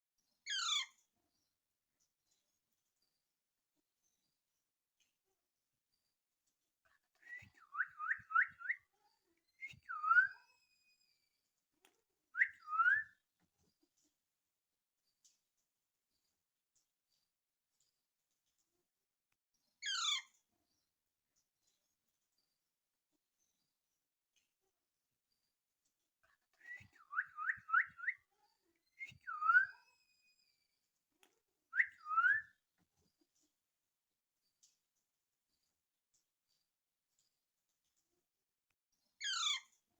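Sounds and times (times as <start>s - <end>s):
parakeet whistled calls: 0.5s - 0.8s, 9.6s - 10.4s, 12.4s - 13.1s, 26.7s - 28.2s, 29.0s - 30.0s, 31.8s - 32.5s
parakeet chirping: 0.5s - 0.9s, 19.8s - 20.2s, 39.2s - 39.6s.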